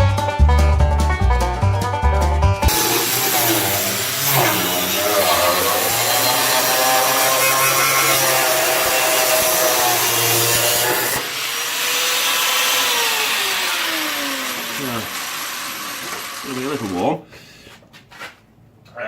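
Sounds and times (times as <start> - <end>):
angle grinder cutting steel: 2.7 - 17.2
grinder motor whine spinning down: 11.1 - 17.0.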